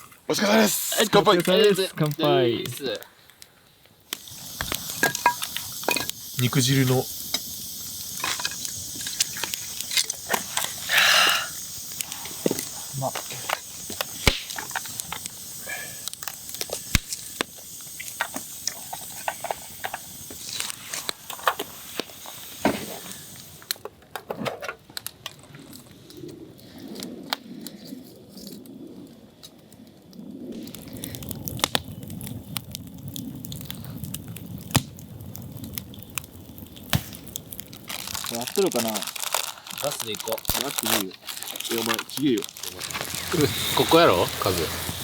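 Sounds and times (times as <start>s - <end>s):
steady high hiss: 0.0s - 23.8s, 35.5s - 45.0s
campfire wood crackling: 0.0s - 45.0s.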